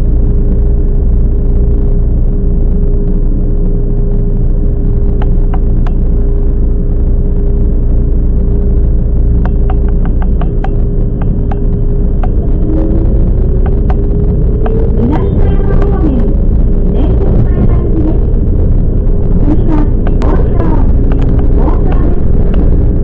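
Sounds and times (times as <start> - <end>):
electric train rumble: 0.0 - 23.0
sharp clicks: 5.1 - 6.1, 9.4 - 15.0, 19.3 - 22.8.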